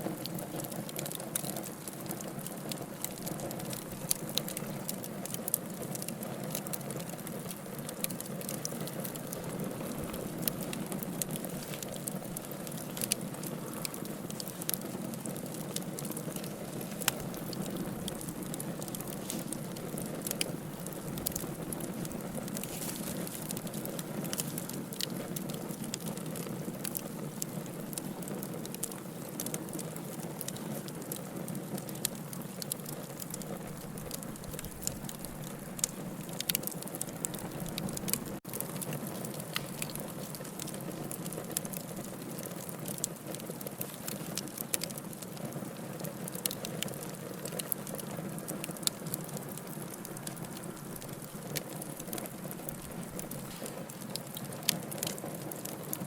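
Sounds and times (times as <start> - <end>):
fireplace fire crackling: 0.0 - 56.0.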